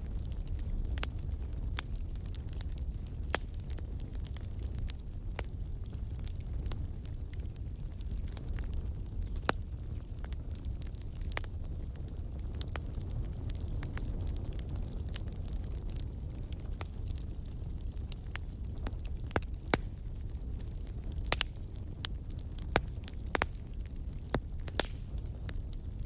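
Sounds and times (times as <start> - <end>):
burning wood crackling and popping: 0.0 - 26.0
fire flames rumbling: 0.0 - 26.0.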